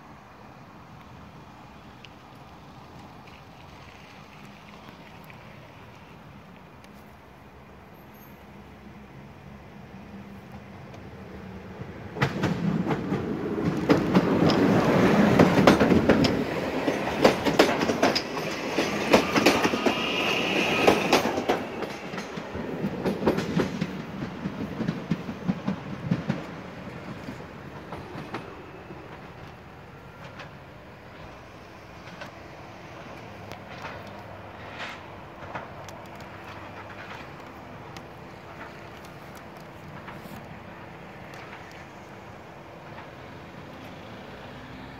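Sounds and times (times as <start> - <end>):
train cars rumbling: 0.0 - 44.9
wheels clacking over rail joints: 9.6 - 44.9.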